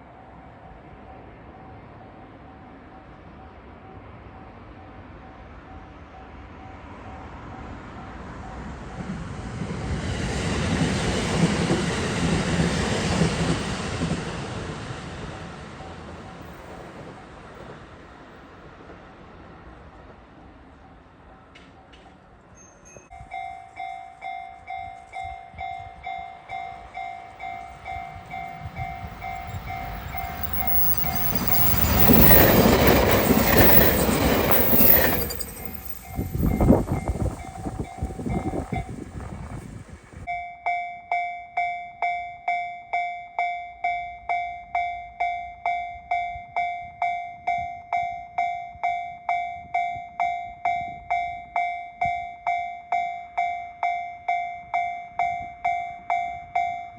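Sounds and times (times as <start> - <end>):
electric train passing: 0.0 - 40.3
level crossing warning bell: 23.1 - 39.1
train wheels clattering: 26.8 - 39.7.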